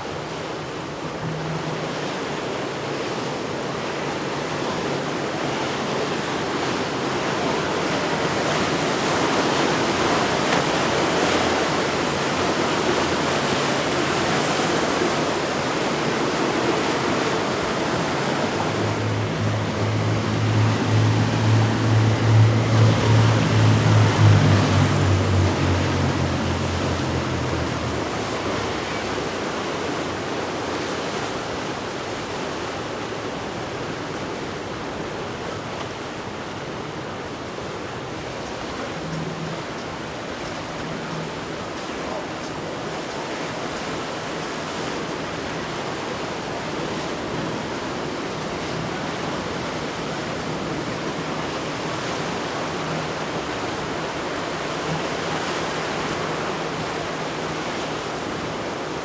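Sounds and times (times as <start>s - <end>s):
boat engine: 0.0s - 59.0s
surf and churning water: 0.0s - 59.0s
faint low engine hum: 18.0s - 30.0s.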